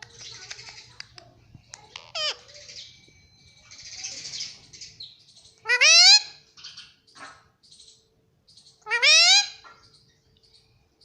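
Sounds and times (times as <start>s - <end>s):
parrot chirps: 1.9s - 2.9s
parrot screeching call: 5.7s - 6.4s, 8.9s - 9.6s.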